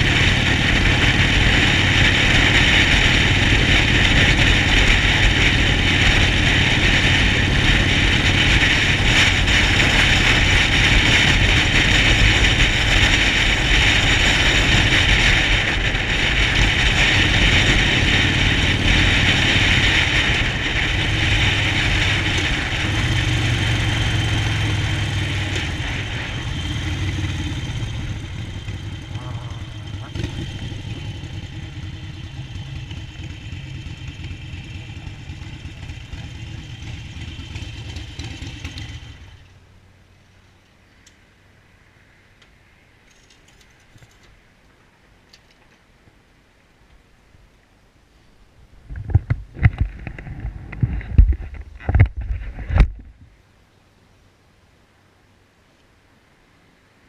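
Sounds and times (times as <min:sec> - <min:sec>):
wind noise: 0:00.0 - 0:32.0, 0:48.6 - 0:53.4
motorcycle engine running: 0:00.0 - 0:39.7.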